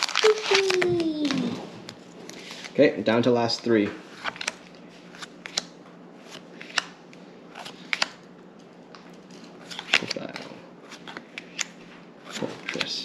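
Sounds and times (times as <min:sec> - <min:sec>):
foil pack crackling: 0:00.0 - 0:01.5
cards handled: 0:00.0 - 0:02.8, 0:04.2 - 0:08.2, 0:09.3 - 0:13.0.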